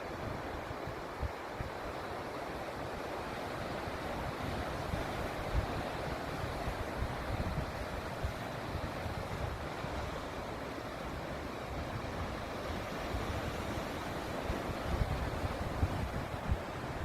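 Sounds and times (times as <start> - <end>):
sea waves on rocky shore: 0.0 - 17.0
wind on microphone: 3.7 - 17.0.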